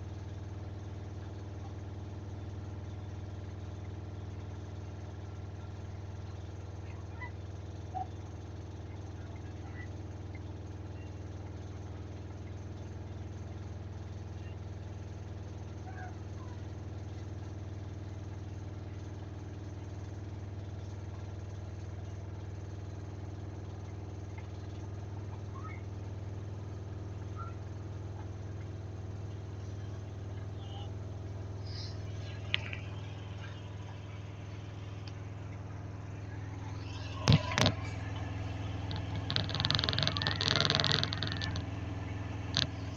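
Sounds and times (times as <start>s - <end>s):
washing machine spinning: 0.0s - 42.9s
faint short chirps: 29.5s - 42.9s.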